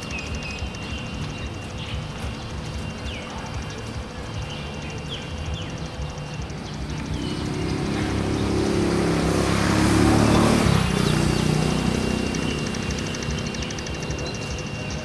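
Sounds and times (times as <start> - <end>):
vehicle engine passing by: 6.0 - 15.0.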